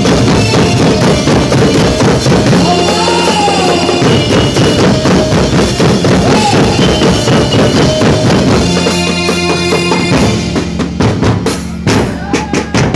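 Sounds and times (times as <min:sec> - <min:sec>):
held musical tones: 0:00.0 - 0:11.1
bass drum and snare beat: 0:00.0 - 0:12.9.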